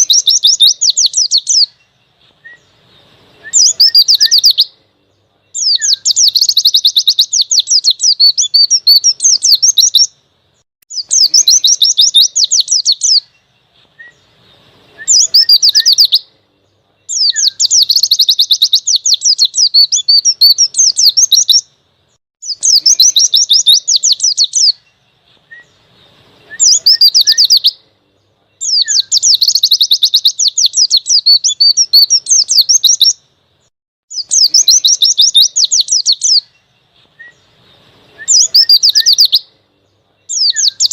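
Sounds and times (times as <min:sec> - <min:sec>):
bird singing chattering notes: 0:00.0 - 0:10.2, 0:10.9 - 0:33.2, 0:34.1 - 0:40.9.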